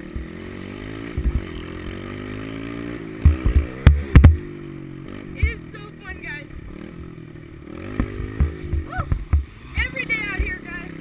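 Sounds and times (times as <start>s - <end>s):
pit bike engine running: 0.0s - 11.0s
heavy low thumps: 3.2s - 4.5s.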